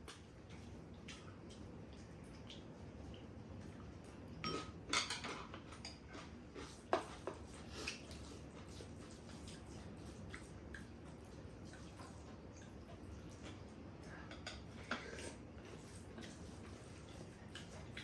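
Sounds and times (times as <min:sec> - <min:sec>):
cutlery clinking on dishes: 0:04.4 - 0:06.0.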